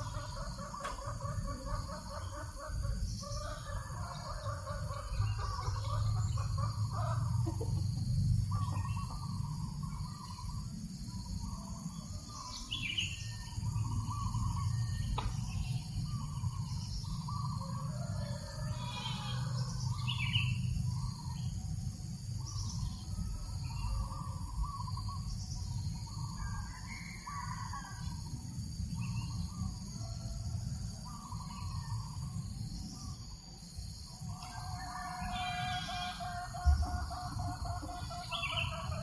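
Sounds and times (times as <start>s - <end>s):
birds calling: 0.0s - 21.7s, 34.2s - 39.0s.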